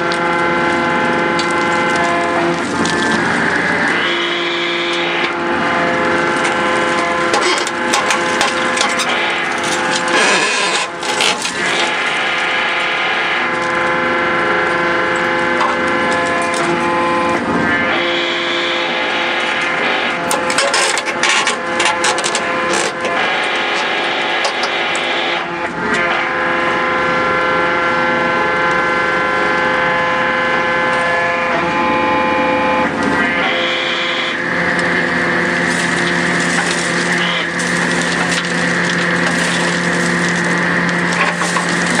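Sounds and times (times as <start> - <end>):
sharp clicks and cracks: 0.0 - 4.0, 6.3 - 14.0, 34.7 - 42.0
heavy machine engine humming: 0.0 - 42.0
hydraulic pile breaker working: 0.0 - 42.0.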